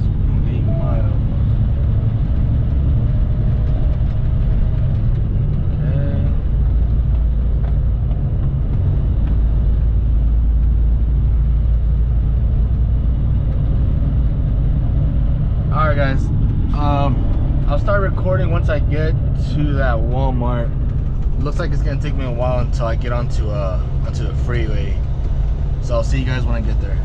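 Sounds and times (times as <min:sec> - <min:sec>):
road noise: 0:00.0 - 0:27.0
truck engine rumble: 0:00.0 - 0:27.0.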